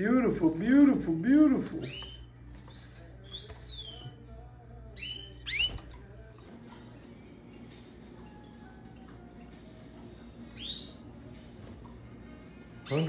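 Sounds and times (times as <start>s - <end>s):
canaries chirping: 0.0s - 13.0s.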